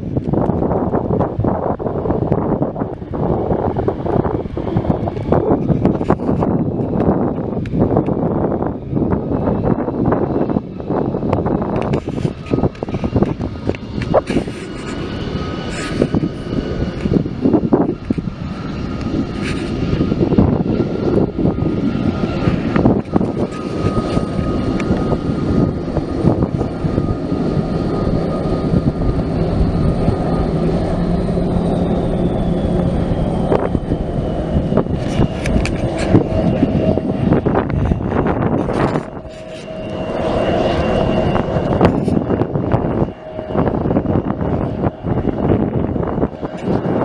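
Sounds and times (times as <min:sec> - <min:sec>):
airplane engines running: 0:00.0 - 0:47.0
high whine falling in pitch: 0:11.1 - 0:47.0.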